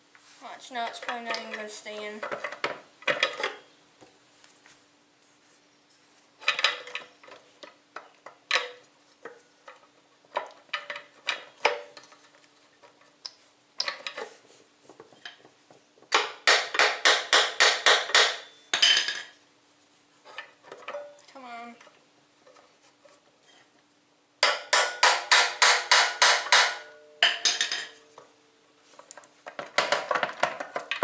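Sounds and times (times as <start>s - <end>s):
faint steady hum: 0.0s - 31.0s
sharp metal taps: 24.4s - 28.3s.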